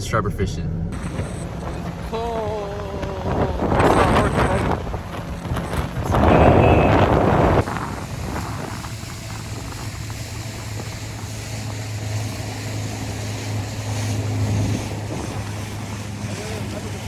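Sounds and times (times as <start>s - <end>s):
boat motor humming: 0.7s - 17.0s
wind noise: 0.9s - 17.0s
loud rush of noise: 1.0s - 15.2s.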